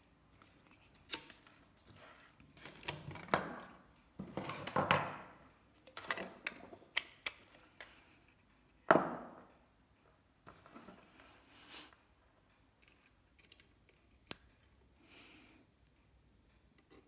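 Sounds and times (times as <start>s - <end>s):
small tools clicking and clattering: 0.4s - 8.1s.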